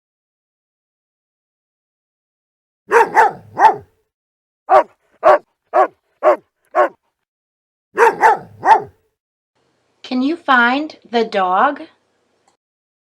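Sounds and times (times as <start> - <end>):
dog barking: 2.9 - 3.9, 4.7 - 7.0, 8.0 - 9.0.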